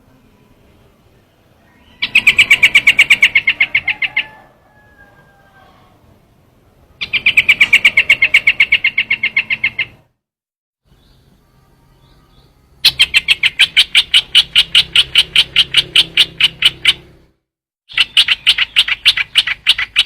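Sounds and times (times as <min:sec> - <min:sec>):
bird call trills: 0:01.6 - 0:05.8, 0:07.0 - 0:10.0, 0:11.9 - 0:17.1, 0:17.9 - 0:20.0.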